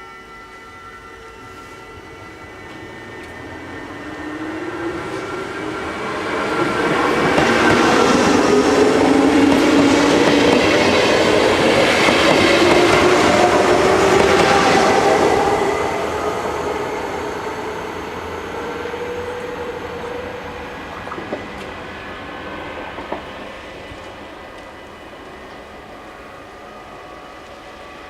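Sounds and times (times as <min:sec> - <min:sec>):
train wheels clattering over rails: 0:06.4 - 0:15.2.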